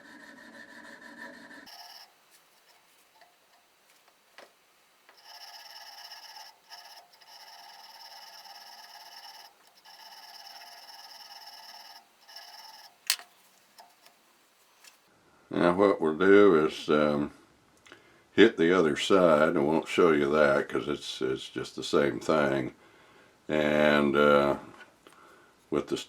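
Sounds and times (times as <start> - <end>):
stone honing steel bit: 1.7 - 14.2
sharp click: 12.8 - 14.2.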